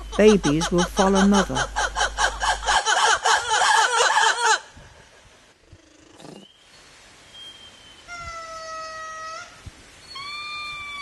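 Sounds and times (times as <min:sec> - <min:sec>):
animal mewing whistled calls: 0:10.0 - 0:11.0.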